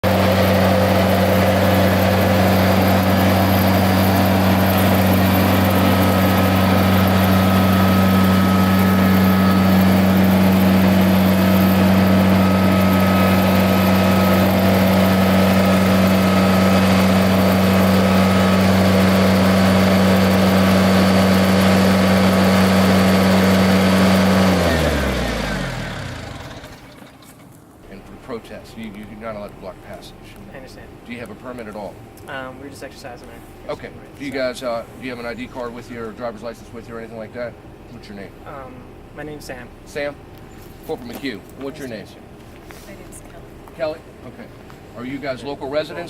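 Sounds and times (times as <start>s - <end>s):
tractor engine idling: 0.0s - 31.4s.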